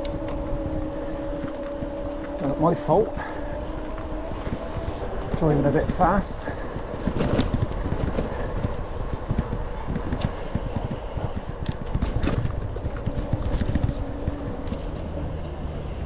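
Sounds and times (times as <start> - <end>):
bicycle tyres rolling on road: 0.0 - 16.0
wind buffeting microphone: 0.0 - 16.0
faint clicks: 9.4 - 10.6.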